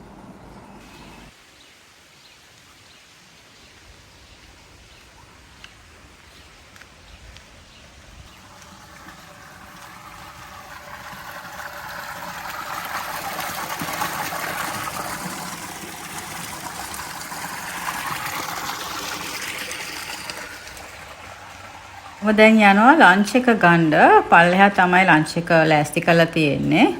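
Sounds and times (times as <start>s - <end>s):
running water rushing: 7.6s - 26.9s.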